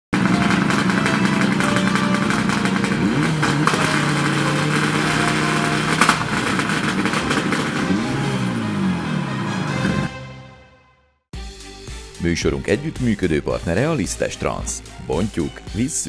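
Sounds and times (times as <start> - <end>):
sharp crack: 0.2 - 8.2
rally car engine revving: 0.2 - 10.2.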